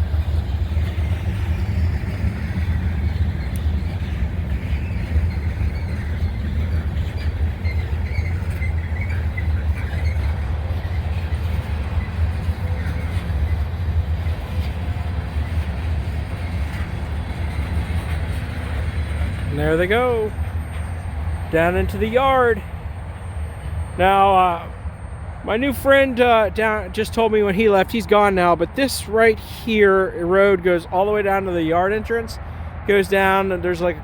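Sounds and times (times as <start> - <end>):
freight train rumbling on rails: 0.0 - 34.0
faint wheel squeal: 0.4 - 26.0.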